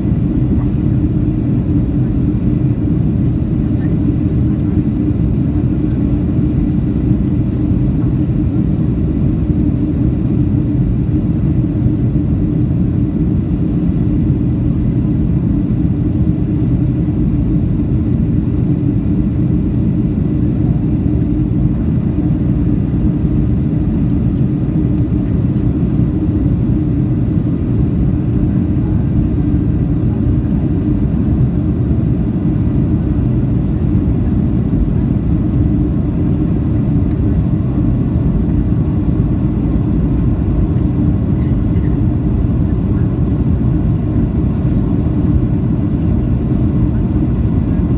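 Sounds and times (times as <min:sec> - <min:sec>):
constant hum: 0:00.0 - 0:47.9
jet engine drone in cabin: 0:00.0 - 0:47.9.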